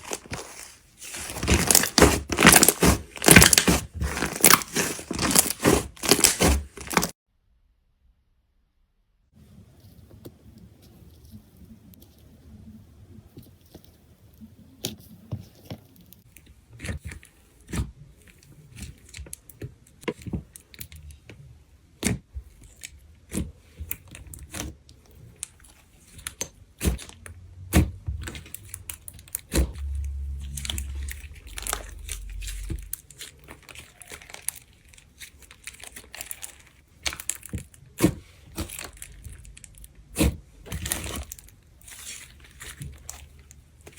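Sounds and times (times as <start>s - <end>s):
soft sticky crackle: 0.0s - 7.2s, 9.5s - 21.2s, 28.2s - 43.9s.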